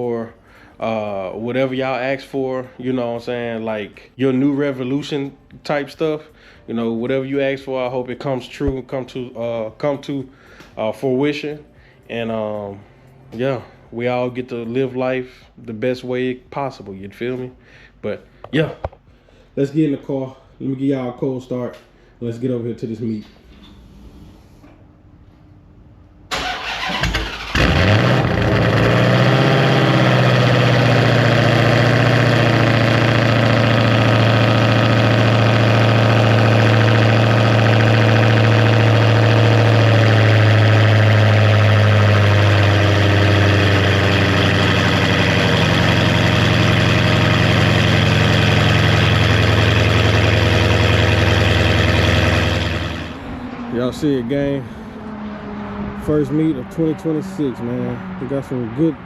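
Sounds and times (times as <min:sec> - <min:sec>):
car engine starting and idling: 0:26.2 - 0:59.0
starter motor cranking: 0:26.3 - 0:28.8.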